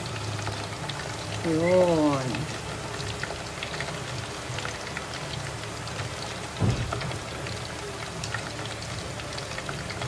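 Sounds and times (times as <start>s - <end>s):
chicken deep-frying in oil: 0.0s - 10.0s
low thump: 6.6s - 7.0s.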